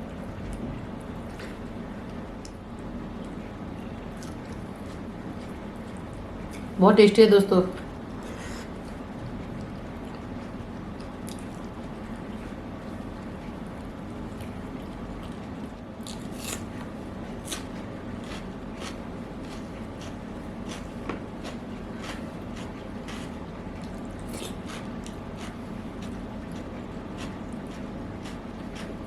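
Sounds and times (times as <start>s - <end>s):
steady low hum: 0.0s - 29.0s
chewing and mouth smacks: 4.2s - 6.7s, 9.6s - 11.7s.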